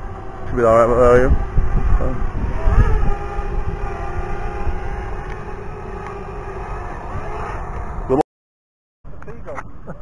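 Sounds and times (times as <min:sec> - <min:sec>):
drone propellers whining: 0:00.0 - 0:08.2
wind rumble on microphone: 0:00.0 - 0:08.2.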